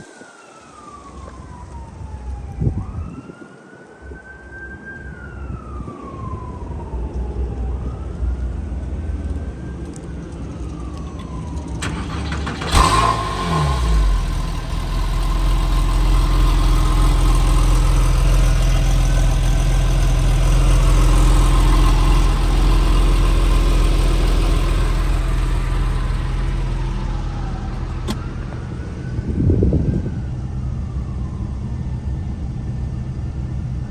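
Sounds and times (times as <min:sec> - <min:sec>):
siren-like wail: 0:00.1 - 0:33.0
car engine cranking and idling: 0:09.2 - 0:30.6.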